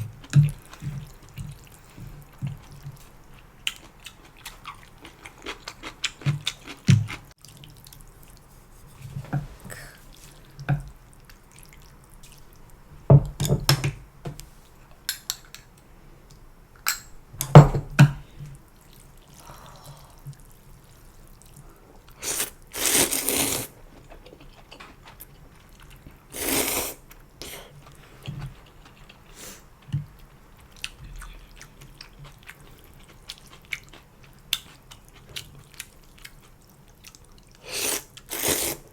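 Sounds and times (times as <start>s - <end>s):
chewing: 0.3s - 8.5s, 24.0s - 26.3s, 27.1s - 38.5s
slurping noodles: 22.2s - 23.8s, 26.3s - 27.0s, 37.6s - 38.9s.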